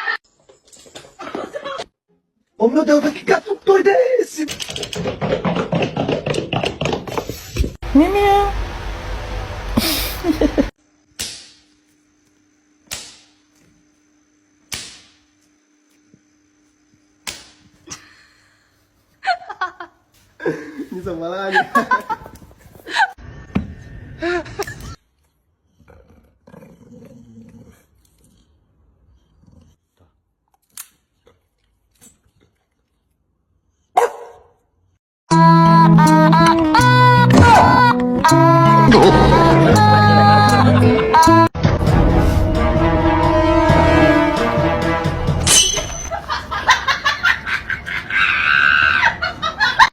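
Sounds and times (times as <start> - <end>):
dog bark: 34.0 - 34.6.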